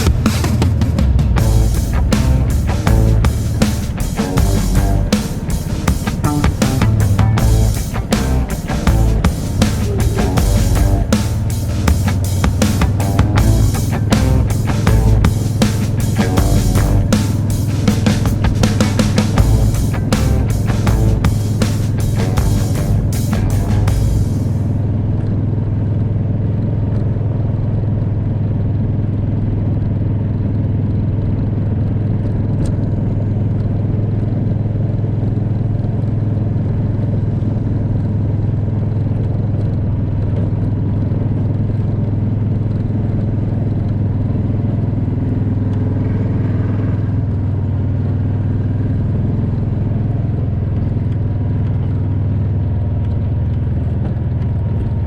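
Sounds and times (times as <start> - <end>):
vehicle engine droning: 0.0 - 29.9.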